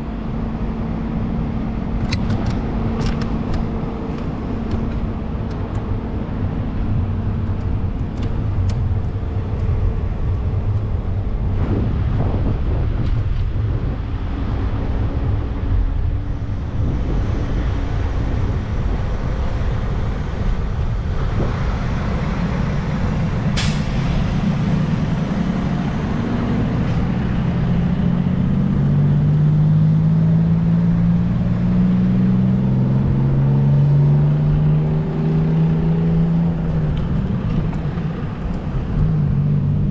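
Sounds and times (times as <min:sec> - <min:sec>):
heavy vehicle engines rumbling: 0:00.0 - 0:39.9
engine pulling away: 0:16.3 - 0:39.9.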